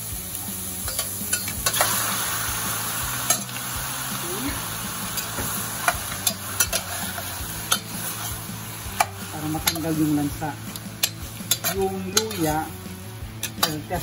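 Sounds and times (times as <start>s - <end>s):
seafood sizzling in a pot: 0.0s - 14.0s
metal ladle clinking against pot: 0.9s - 1.9s, 5.2s - 7.0s, 7.7s - 8.0s, 11.0s - 12.6s, 13.4s - 13.8s.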